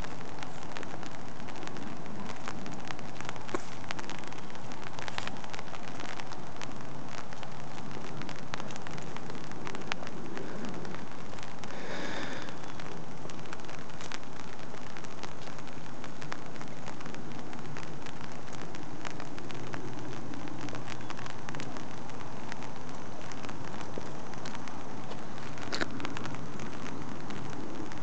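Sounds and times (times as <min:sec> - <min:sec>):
light rain hissing: 0:00.0 - 0:28.0
raindrops ticking close by: 0:00.0 - 0:28.0.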